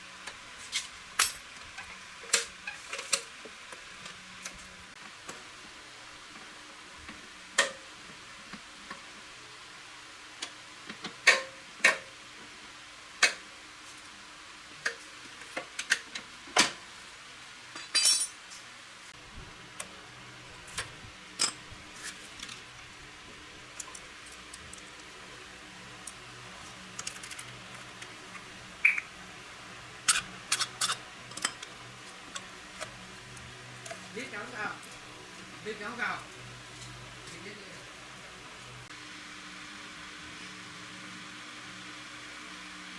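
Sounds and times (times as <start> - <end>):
metal tools clicking and clinking: 17.8 - 18.4, 30.1 - 31.7.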